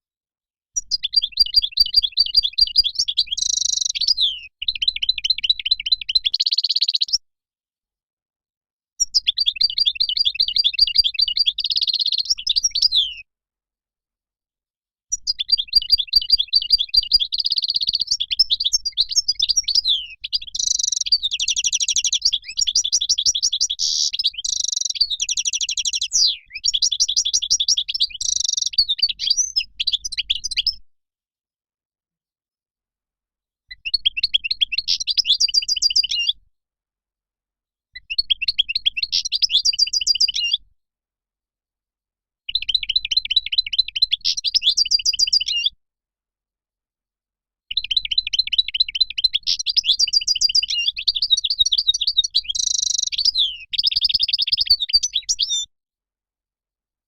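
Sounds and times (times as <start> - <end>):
finch twittering song: 0.8 - 7.2, 9.0 - 13.2, 15.1 - 30.8, 33.7 - 36.4, 38.0 - 40.6, 42.5 - 45.8, 47.7 - 55.7.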